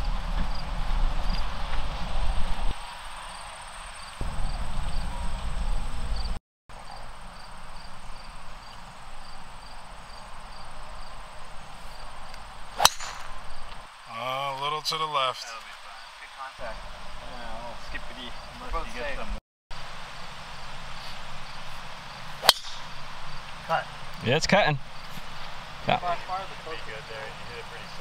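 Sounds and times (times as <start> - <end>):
insects chirping: 0.4 - 1.5, 2.7 - 28.0
golf club striking ball: 12.8 - 13.6, 22.4 - 23.0.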